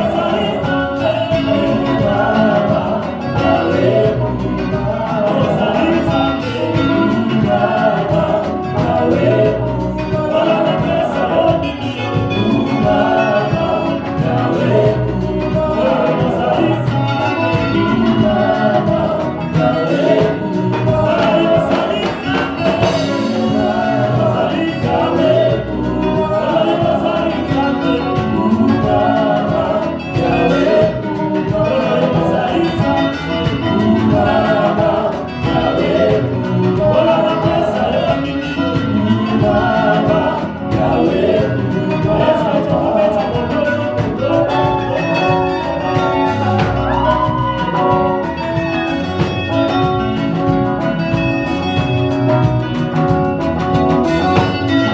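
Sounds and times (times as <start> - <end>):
band playing a steady beat: 0.0 - 54.9
group singing: 0.0 - 54.9.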